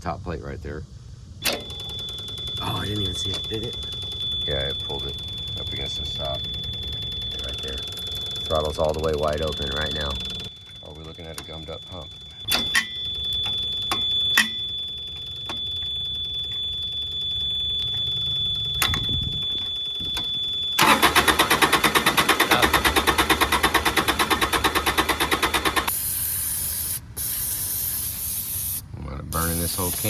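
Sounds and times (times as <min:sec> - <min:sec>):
low hum: 0:00.0 - 0:25.9
high-pitched alarm tone: 0:01.4 - 0:28.8, 0:29.4 - 0:30.0
loud rapid pulsing: 0:20.8 - 0:26.1
aerosol spray hissing: 0:25.9 - 0:30.0.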